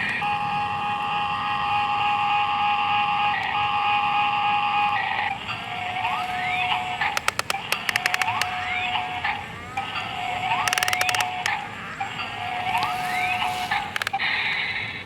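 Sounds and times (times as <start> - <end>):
sharp electronic clicks: 6.0 - 14.4.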